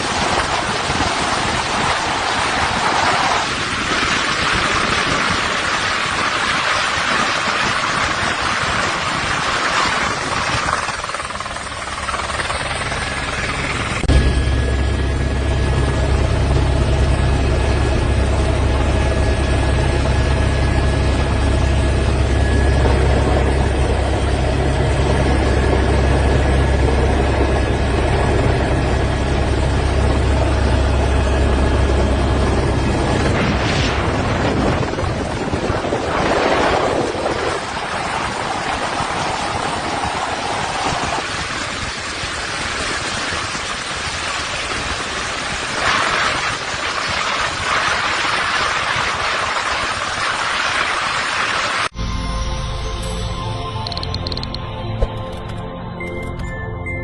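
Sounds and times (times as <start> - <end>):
rushing noise: 0.0 - 15.9, 30.1 - 54.4
helicopter rotor and turbine drone: 0.0 - 56.4.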